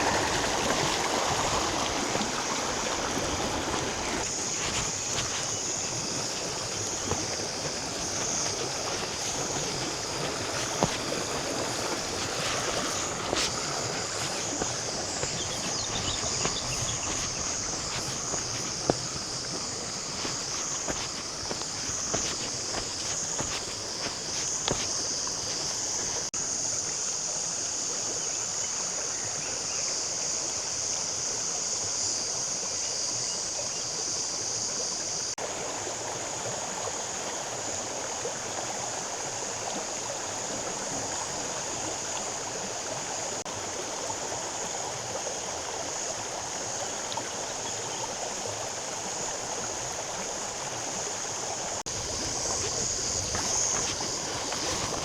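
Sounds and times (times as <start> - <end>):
water flowing: 0.0 - 26.8, 35.4 - 55.0
high-pitched hiss: 1.4 - 28.6, 50.2 - 55.0.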